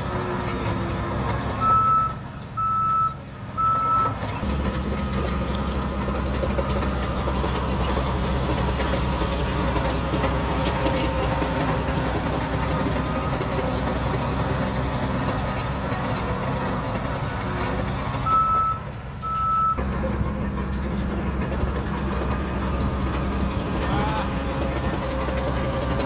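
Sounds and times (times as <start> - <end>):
bulldozer diesel engine running: 0.0 - 26.0
reversing alarm beeps: 1.6 - 4.2, 18.2 - 19.8.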